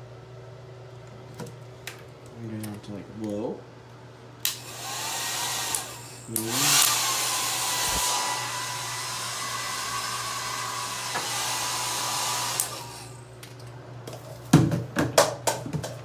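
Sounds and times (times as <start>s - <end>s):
hair dryer blowing air: 4.5s - 13.3s.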